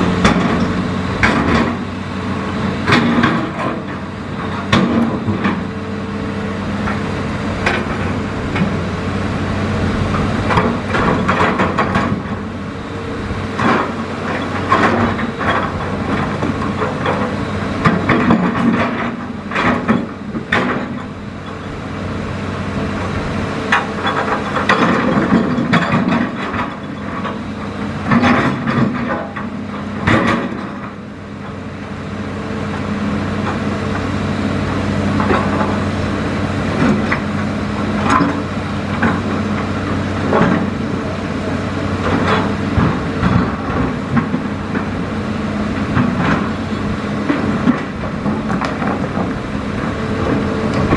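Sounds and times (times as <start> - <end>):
excavator diesel engine running: 0.0 - 50.9
sharp knocks and clatter: 0.2 - 1.9, 2.8 - 5.7, 10.4 - 12.4, 13.6 - 21.2, 23.7 - 27.4, 28.0 - 31.0, 47.2 - 50.9.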